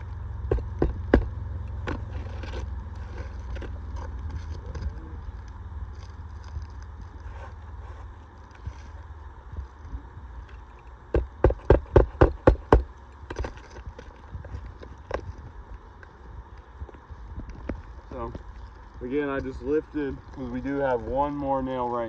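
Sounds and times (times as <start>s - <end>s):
hammer blows on roofing nail: 11.1s - 12.9s.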